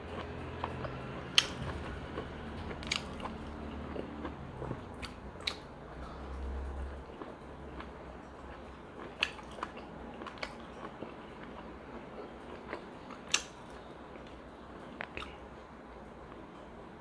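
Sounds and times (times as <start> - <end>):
person chewing food: 0.0 - 15.4
mouth clicks and smacks: 0.2 - 1.8, 4.9 - 5.7.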